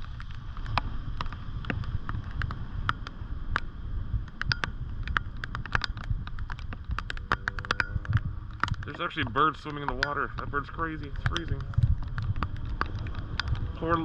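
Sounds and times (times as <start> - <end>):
wind rumble on microphone: 0.0 - 14.0
raindrops tapping on plastic housing: 4.3 - 14.0.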